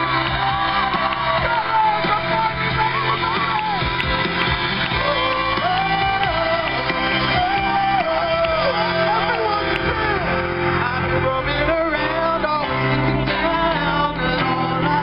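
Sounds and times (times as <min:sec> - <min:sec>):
man singing: 0:00.0 - 0:03.8, 0:04.9 - 0:15.0
live band playing: 0:00.0 - 0:15.0.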